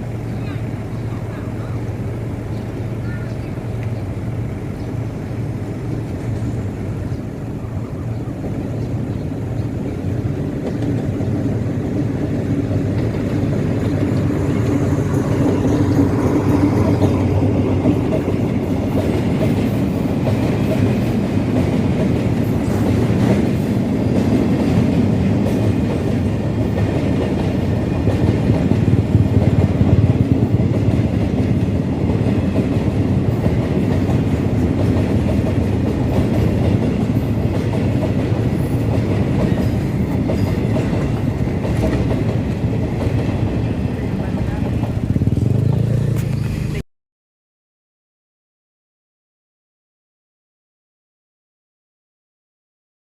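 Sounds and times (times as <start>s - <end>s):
diesel train rumble: 0.0s - 46.8s
train wheel clatter: 8.1s - 46.8s.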